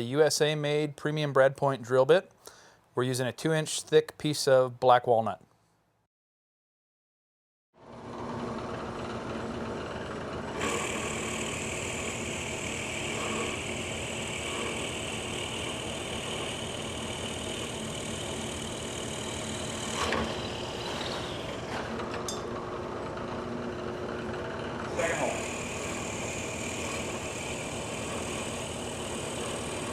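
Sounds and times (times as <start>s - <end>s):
drill press motor hum: 7.8s - 29.9s
drill bit cutting wood: 10.2s - 22.0s, 24.8s - 29.9s.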